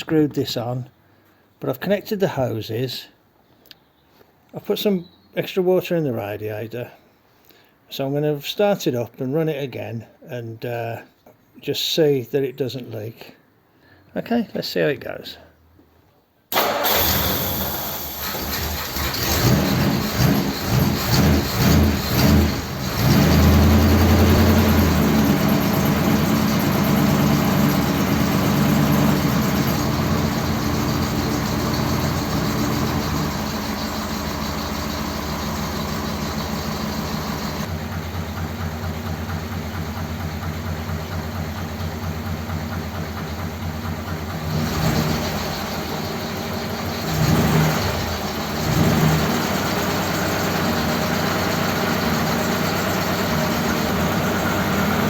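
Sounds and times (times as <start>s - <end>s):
engine throttle blips: 16.5s - 55.0s
car engine idling: 16.6s - 55.0s.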